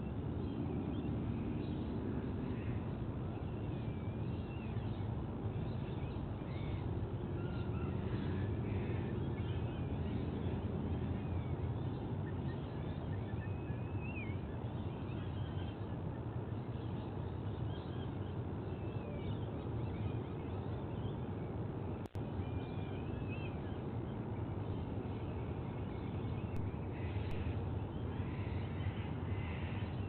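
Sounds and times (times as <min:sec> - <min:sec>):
wind rumble: 0:00.0 - 0:13.7.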